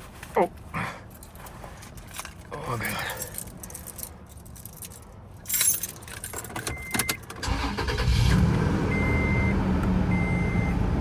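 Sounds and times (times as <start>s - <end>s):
keys jangling: 1.2s - 6.8s
car engine starting and idling: 6.6s - 11.0s.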